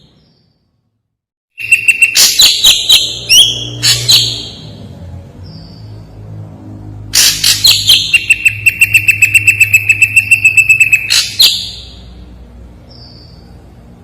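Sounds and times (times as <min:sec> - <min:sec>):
bird singing rapid repeated notes: 0:01.6 - 0:06.4, 0:07.2 - 0:13.7
steady high tone: 0:08.0 - 0:11.4.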